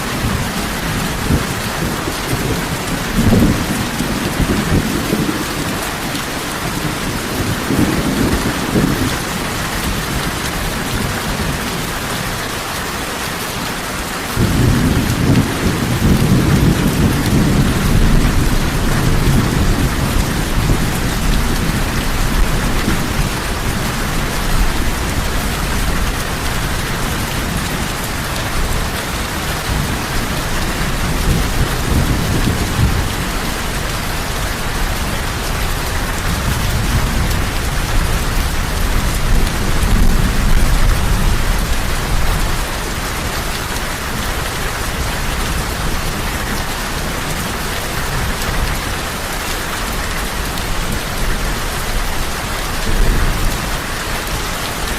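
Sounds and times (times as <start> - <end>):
heavy rain falling: 0.0 - 54.9
thunder rumbling: 0.2 - 11.8, 14.4 - 43.4.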